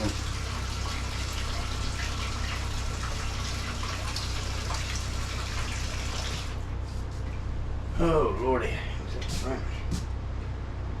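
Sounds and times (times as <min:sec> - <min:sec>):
water running from faucet: 0:00.0 - 0:06.6
low steady hum: 0:00.0 - 0:11.0.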